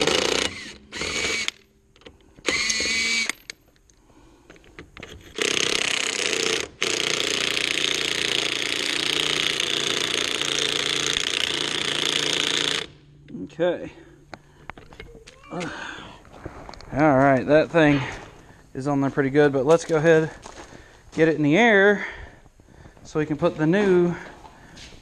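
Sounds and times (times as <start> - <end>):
impact wrench hammering: 2.4 - 3.5.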